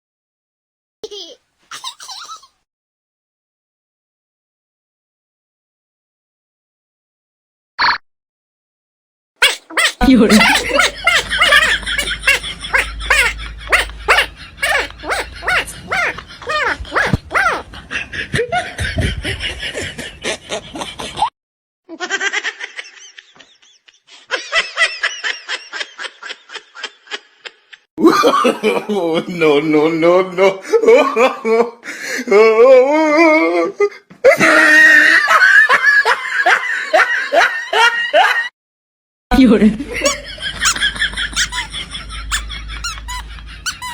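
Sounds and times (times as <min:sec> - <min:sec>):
animal yelping: 0:09.4 - 0:17.7, 0:40.0 - 0:43.9
person laughing: 0:09.4 - 0:21.3, 0:34.3 - 0:35.4, 0:39.7 - 0:43.9.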